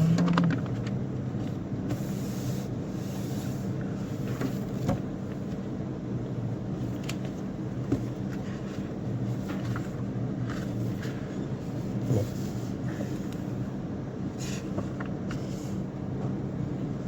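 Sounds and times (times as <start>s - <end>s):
motor vehicle droning: 0.0s - 0.9s.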